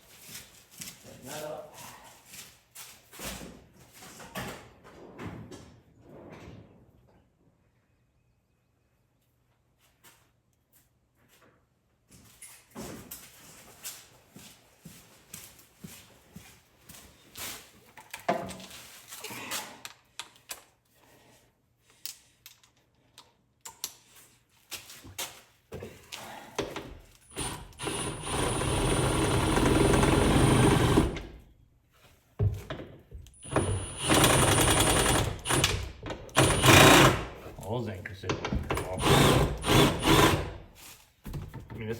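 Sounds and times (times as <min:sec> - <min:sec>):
power drill running: 0:27.3 - 0:31.4, 0:33.4 - 0:37.4, 0:38.8 - 0:40.6.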